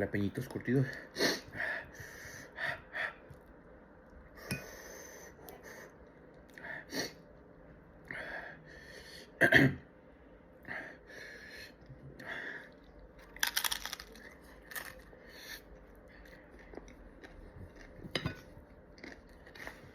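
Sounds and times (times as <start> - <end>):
person chewing snacks: 12.6 - 15.6, 18.9 - 19.9.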